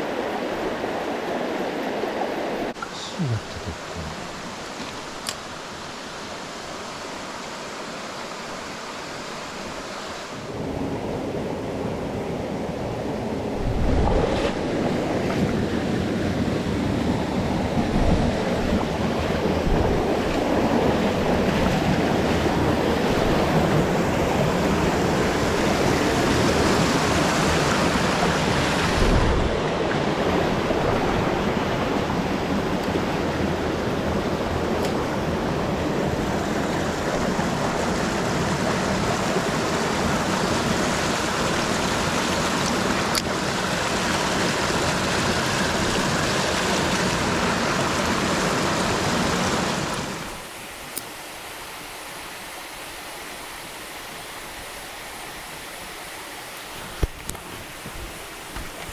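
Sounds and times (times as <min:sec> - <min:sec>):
mountain stream rushing: 0:00.0 - 0:58.9
wind buffets on microphone: 0:10.5 - 0:32.9.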